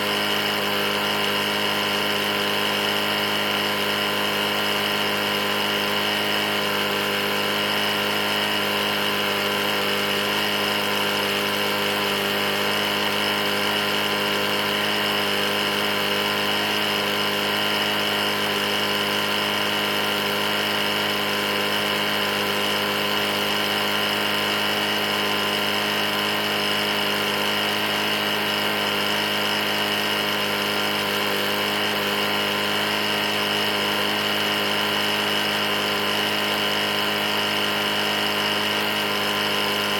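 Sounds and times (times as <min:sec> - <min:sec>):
mower engine knocking: 0:00.0 - 0:39.9.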